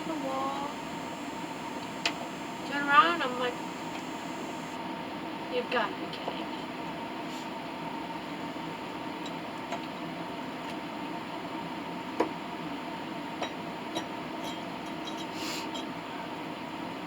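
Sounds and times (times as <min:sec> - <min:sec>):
electrical hum: 0:00.0 - 0:04.8.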